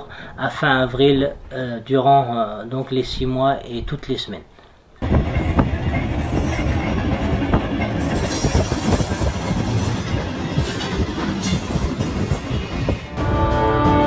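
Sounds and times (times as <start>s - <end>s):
train wheels rumbling on rails: 5.0s - 13.2s.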